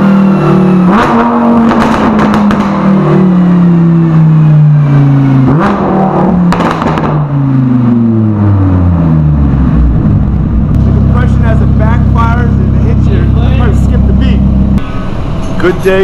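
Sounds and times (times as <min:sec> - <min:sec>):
sports car engine slowing: 0:00.0 - 0:16.0
exhaust crackles and pops: 0:00.8 - 0:03.2, 0:05.5 - 0:08.0, 0:09.6 - 0:14.9.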